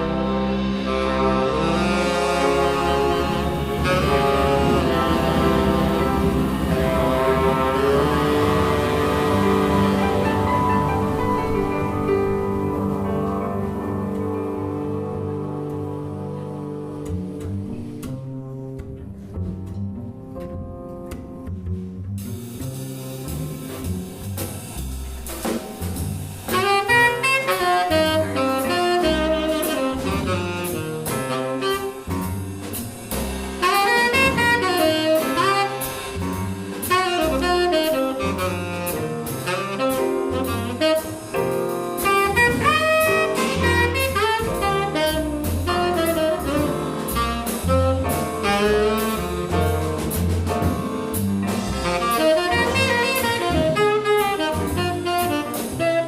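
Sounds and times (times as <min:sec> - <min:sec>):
horn melody: 0:00.0 - 0:17.7, 0:26.5 - 0:32.8, 0:33.6 - 0:56.0
drum kit with cymbals: 0:00.0 - 0:18.6, 0:20.3 - 0:56.0
double bass: 0:00.0 - 0:56.0
piano: 0:00.0 - 0:56.0.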